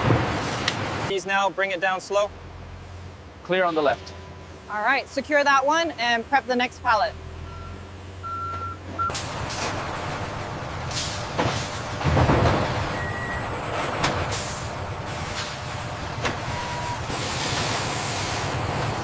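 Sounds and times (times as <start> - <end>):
short beeps: 7.4 - 9.2, 13.0 - 13.4, 16.5 - 17.0
air hissing: 16.9 - 18.6.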